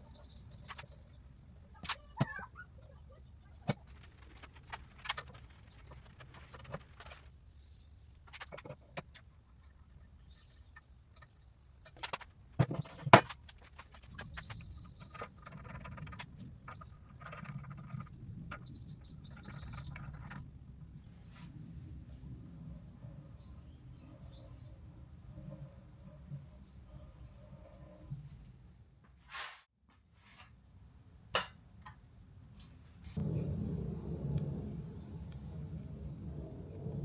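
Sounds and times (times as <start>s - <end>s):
rustling and scraping: 3.7s - 7.4s.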